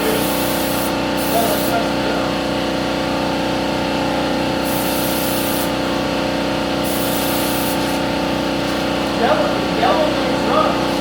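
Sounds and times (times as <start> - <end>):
hissing spray: 0.0 - 1.8, 4.6 - 5.8, 6.8 - 8.1
steady machine hum: 0.0 - 11.0.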